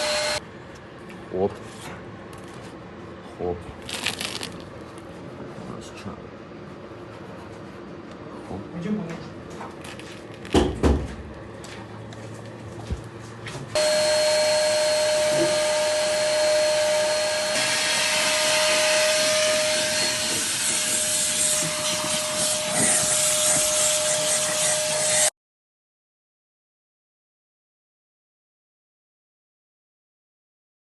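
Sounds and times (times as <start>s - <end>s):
machine motor whining: 0.0s - 0.4s, 13.8s - 25.3s.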